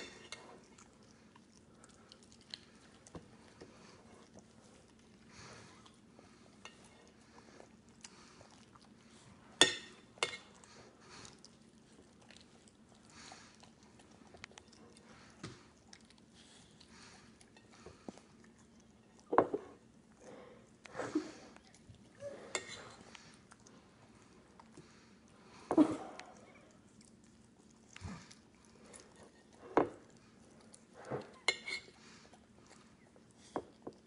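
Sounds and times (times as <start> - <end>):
crunching and chewing cereal: 0.1 - 20.9.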